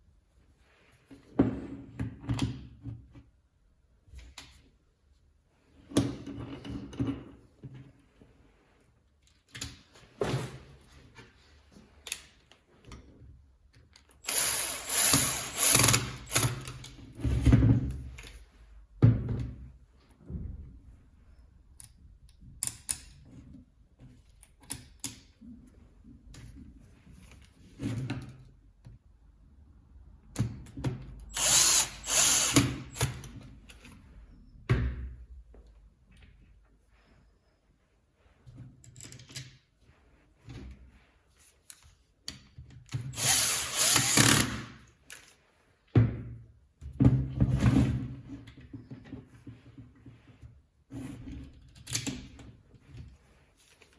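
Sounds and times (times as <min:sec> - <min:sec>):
power tool running: 0:14.2 - 0:16.5, 0:31.3 - 0:33.0, 0:43.2 - 0:44.6.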